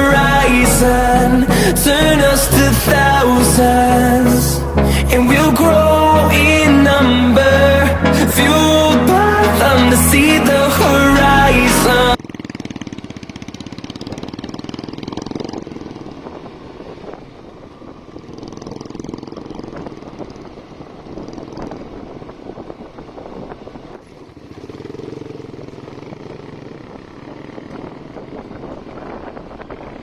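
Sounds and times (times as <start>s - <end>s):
motorcycle engine running: 0.0s - 30.0s
road noise: 0.0s - 30.0s
wind noise: 19.4s - 24.3s, 27.2s - 30.0s.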